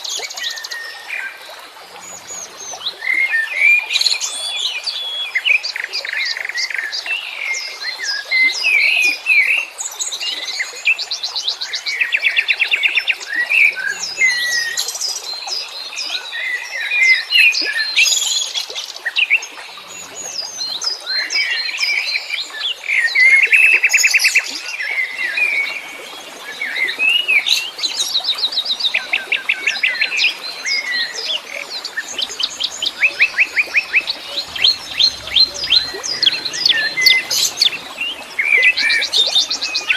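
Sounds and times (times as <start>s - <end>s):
songbirds chirping and trilling: 13.4s - 15.4s, 25.8s - 39.9s.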